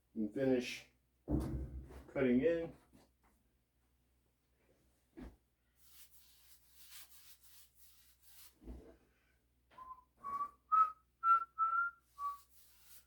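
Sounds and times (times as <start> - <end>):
soft knock: 1.3 - 2.1
man whistling a tune: 9.8 - 12.5.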